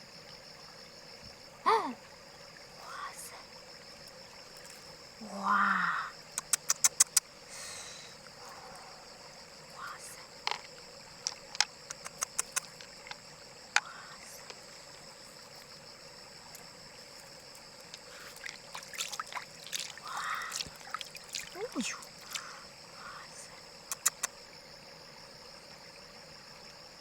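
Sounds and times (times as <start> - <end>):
sharp clicks and taps: 6.4 - 7.2, 10.5 - 13.2, 23.9 - 24.3.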